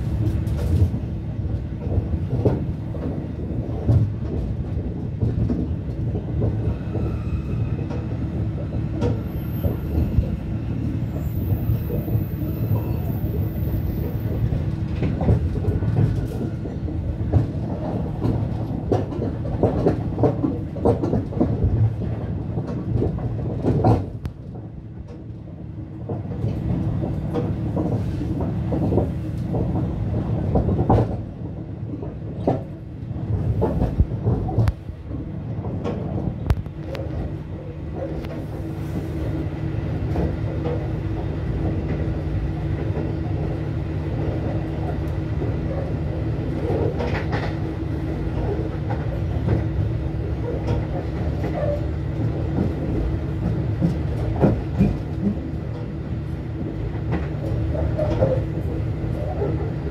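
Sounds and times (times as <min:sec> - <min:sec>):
diesel locomotive engine drone: 0:00.0 - 0:59.9
train wheels clattering on rails: 0:00.0 - 0:59.9.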